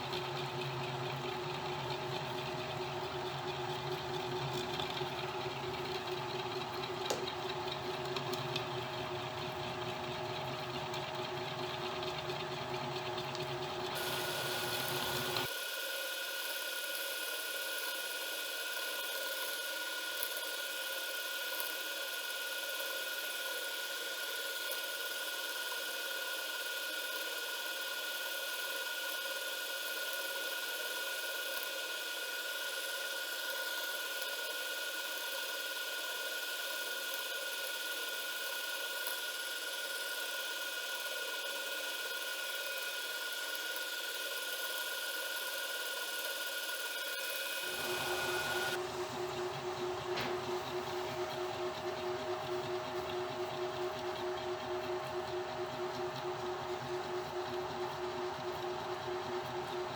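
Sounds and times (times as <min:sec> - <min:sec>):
router spindle high whine: 0:13.9 - 0:15.5, 0:46.8 - 0:59.8.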